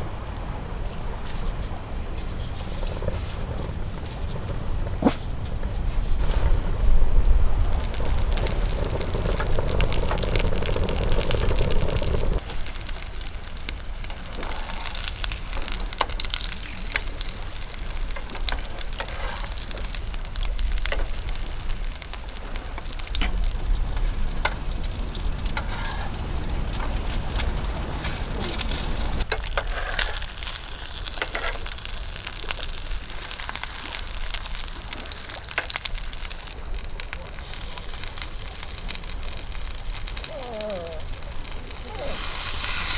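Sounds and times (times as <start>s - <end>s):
strong wind on microphone: 0.1s - 12.4s
crackle of small ticks: 7.6s - 42.9s.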